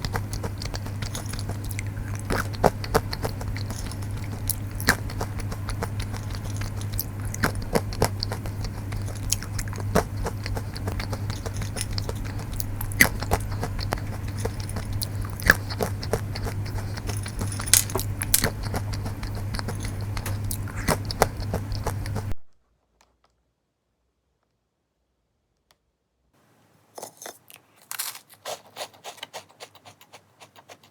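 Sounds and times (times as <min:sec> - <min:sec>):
chewing crunchy peanuts: 0:00.0 - 0:22.4, 0:27.0 - 0:30.9
steady low hum: 0:00.0 - 0:22.4.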